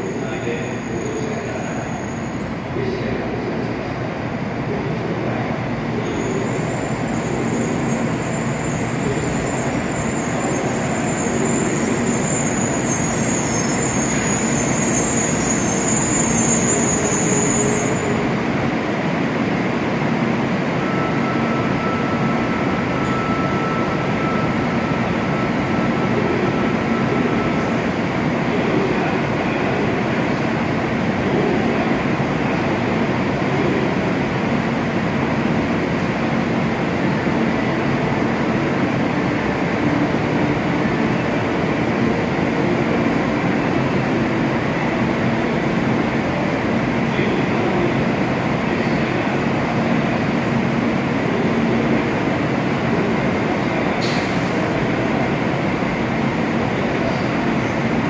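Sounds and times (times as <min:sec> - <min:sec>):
high-pitched brake squeal: 0:00.0 - 0:02.5, 0:06.0 - 0:18.3, 0:20.8 - 0:27.7
train braking to a stop: 0:00.0 - 0:04.0, 0:05.8 - 0:58.0
hum of train equipment: 0:00.0 - 0:58.0.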